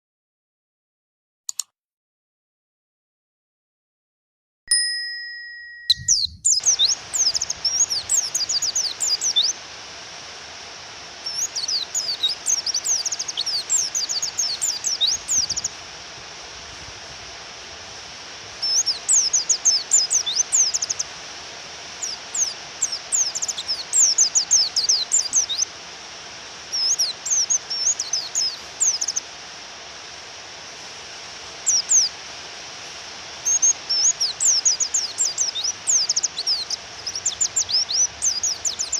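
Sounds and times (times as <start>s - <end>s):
brief electronic tone: 5.2s - 6.6s
bird high chirps: 5.6s - 9.6s, 11.2s - 15.7s, 18.6s - 21.1s, 22.0s - 25.7s, 26.7s - 29.2s, 33.4s - 38.9s
rain hiss: 6.5s - 38.9s.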